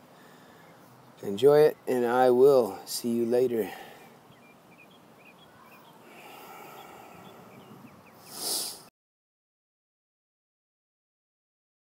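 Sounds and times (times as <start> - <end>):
rustle: 0.0 - 8.9
small birds chirping: 0.0 - 8.9.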